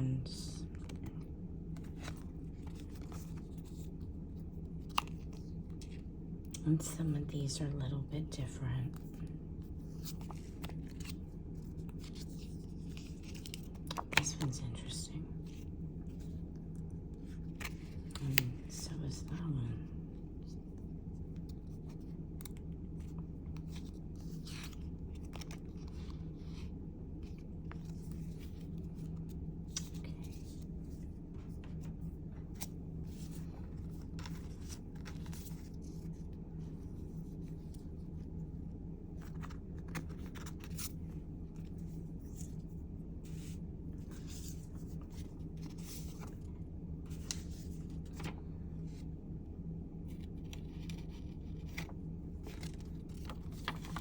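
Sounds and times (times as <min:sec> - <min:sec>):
steady low hum: 0:00.0 - 0:54.0
paper rustling: 0:01.8 - 0:04.1, 0:32.5 - 0:37.8, 0:39.1 - 0:42.6, 0:43.2 - 0:46.5, 0:47.1 - 0:49.0, 0:50.1 - 0:54.0.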